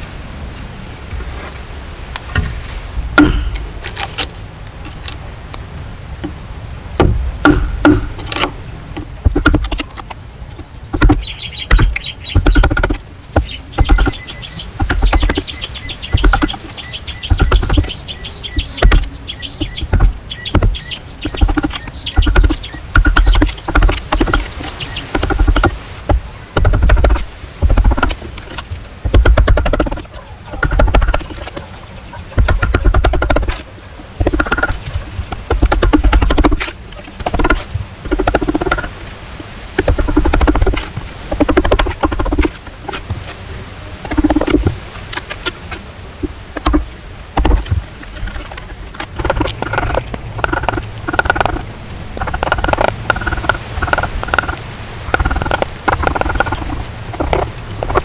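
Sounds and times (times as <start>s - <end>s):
dull knocks and thuds: 2.3s - 4.0s, 7.0s - 31.7s, 32.3s - 39.0s, 39.7s - 43.3s, 44.0s - 44.8s, 46.2s - 58.0s
bird chirping trills: 5.8s - 28.2s, 49.2s - 58.0s.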